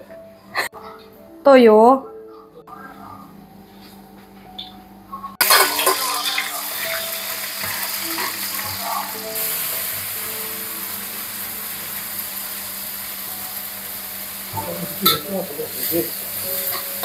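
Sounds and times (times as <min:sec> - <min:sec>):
food sizzling in hot oil: 0:05.4 - 0:17.0.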